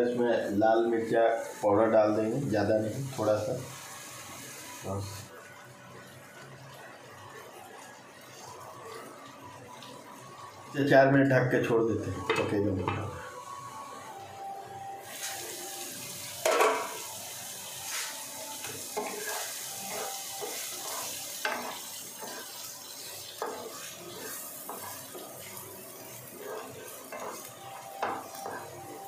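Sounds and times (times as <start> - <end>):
food sizzling in a pan: 0.0 - 29.0
wooden spatula scraping a pan: 18.8 - 29.0.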